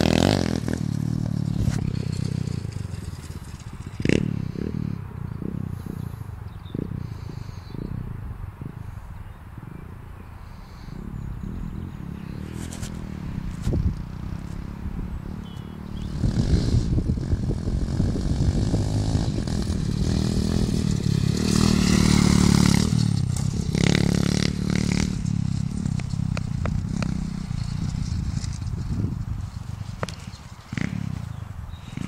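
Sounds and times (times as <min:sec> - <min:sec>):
motorbike engine revving: 0:00.0 - 0:07.3, 0:11.8 - 0:29.3, 0:30.0 - 0:32.0.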